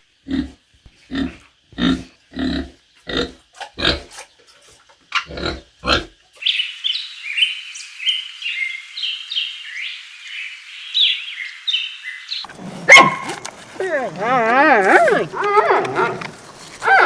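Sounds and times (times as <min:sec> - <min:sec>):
small birds chirping: 0:10.7 - 0:17.0
pig grunting: 0:12.5 - 0:17.0.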